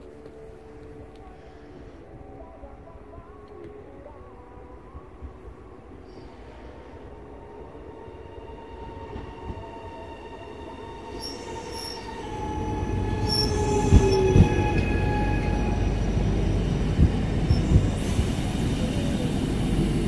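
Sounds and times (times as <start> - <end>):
high wheel squeals: 11.0 - 16.6.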